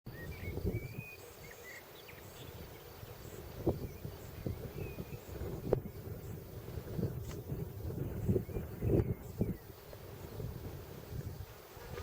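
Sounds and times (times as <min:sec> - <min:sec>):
wind buffeting microphone: 0:00.1 - 0:12.0.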